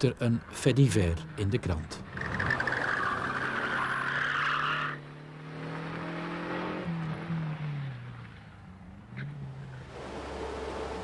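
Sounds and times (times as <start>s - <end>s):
car engine idling and revving: 0.4s - 11.0s.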